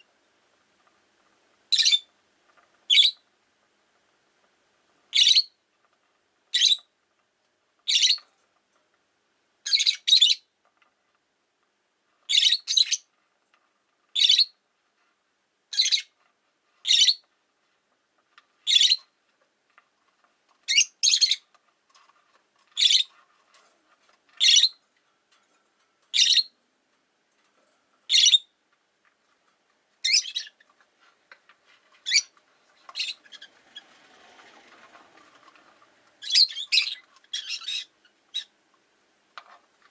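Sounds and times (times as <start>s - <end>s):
lovebird high-pitched calls: 1.7s - 2.1s, 2.9s - 3.2s, 5.1s - 5.6s, 6.5s - 6.9s, 7.8s - 8.2s, 9.6s - 10.5s, 12.3s - 13.1s, 14.1s - 14.6s, 15.7s - 16.2s, 16.8s - 17.3s, 18.6s - 19.1s, 20.7s - 21.4s, 22.8s - 23.1s, 24.4s - 24.8s, 26.1s - 26.6s, 28.1s - 28.5s, 30.0s - 30.6s, 32.0s - 33.9s, 36.2s - 38.5s.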